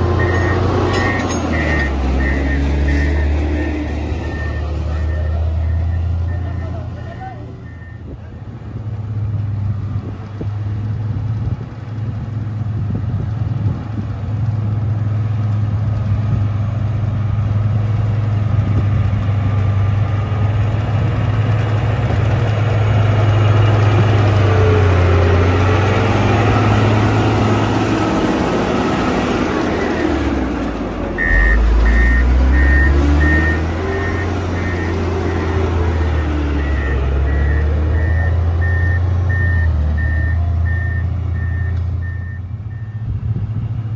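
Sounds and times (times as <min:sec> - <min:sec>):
diesel engine running: 0:00.0 - 0:43.9
reversing alarm beeping: 0:00.1 - 0:08.1, 0:31.2 - 0:43.1.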